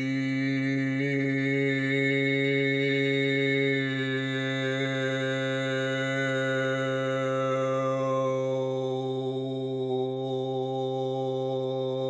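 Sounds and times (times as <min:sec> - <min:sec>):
man chanting a low drone: 0:00.0 - 0:12.0.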